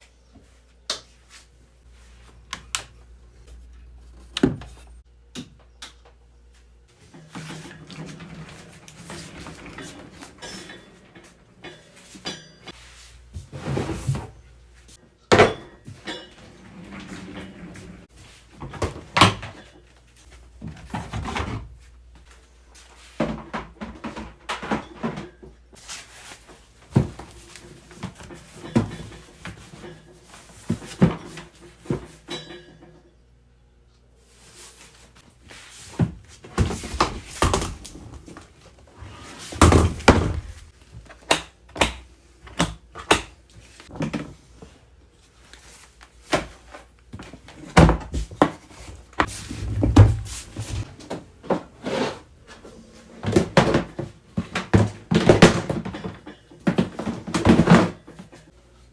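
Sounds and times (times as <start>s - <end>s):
cases thudding down: 39.4s - 43.3s, 46.2s - 51.8s.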